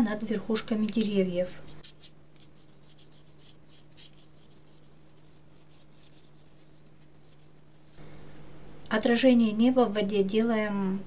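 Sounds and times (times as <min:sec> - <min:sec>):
paintbrush strokes on paper: 0:01.4 - 0:08.0.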